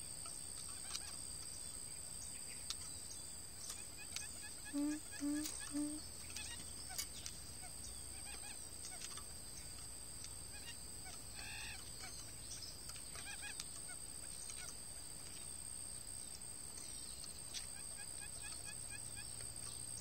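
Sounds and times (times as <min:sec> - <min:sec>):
faint bird chirps: 0:00.0 - 0:15.6
thin high-pitched hum: 0:04.6 - 0:06.5.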